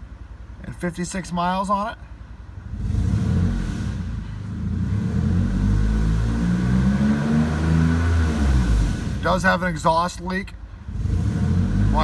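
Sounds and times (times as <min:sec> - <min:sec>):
car engine revving: 0:02.6 - 0:09.6, 0:10.8 - 0:12.0.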